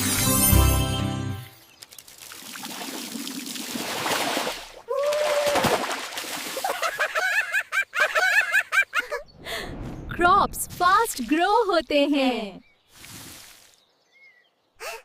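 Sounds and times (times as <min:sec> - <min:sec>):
cartoon water pouring and splashing: 0:01.7 - 0:06.8, 0:10.5 - 0:11.8, 0:12.9 - 0:13.8
vocal ooh: 0:04.9 - 0:05.7.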